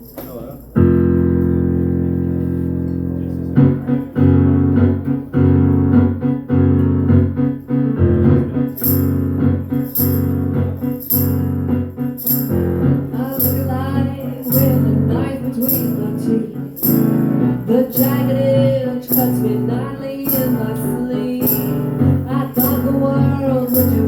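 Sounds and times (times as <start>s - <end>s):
keyboard chords: 0.3s - 24.0s
tambourine on a steady beat: 8.6s - 24.0s.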